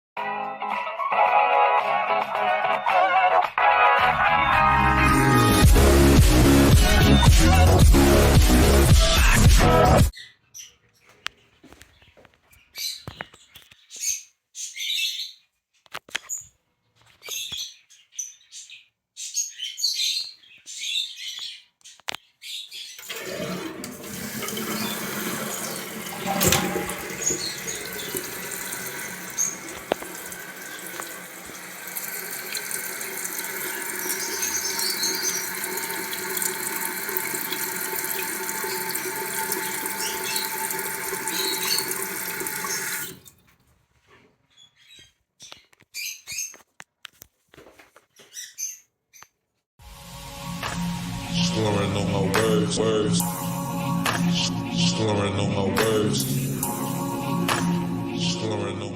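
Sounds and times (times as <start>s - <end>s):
fill valve hissing whine: 23.0s - 43.2s
water filling toilet tank: 23.0s - 43.4s.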